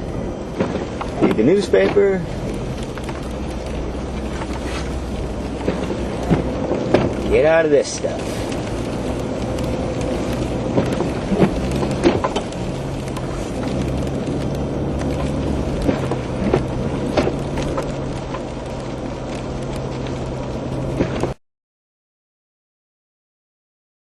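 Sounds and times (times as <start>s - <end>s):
car engine and road hum: 0.0s - 21.4s
sharp ticks and knocks: 0.6s - 7.6s, 8.5s - 20.2s.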